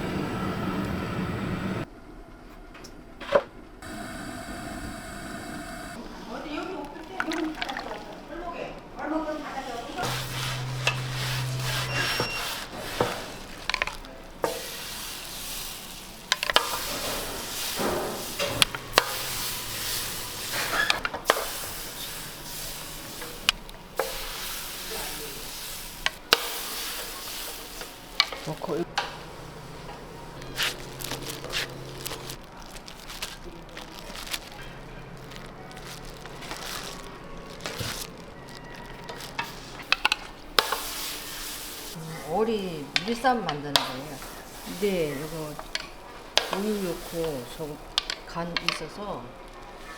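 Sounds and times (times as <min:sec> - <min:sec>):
food sizzling: 0:03.8 - 0:49.9
utensils clicking and knocking: 0:10.0 - 0:22.1, 0:25.9 - 0:29.2, 0:38.8 - 0:41.7, 0:42.8 - 0:49.2.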